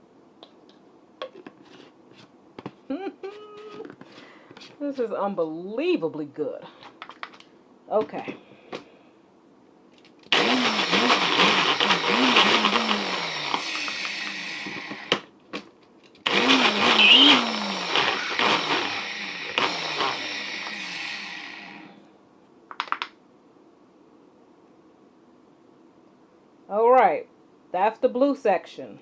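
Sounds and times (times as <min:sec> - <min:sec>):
blender motor running: 0:10.3 - 0:15.2, 0:16.2 - 0:22.0.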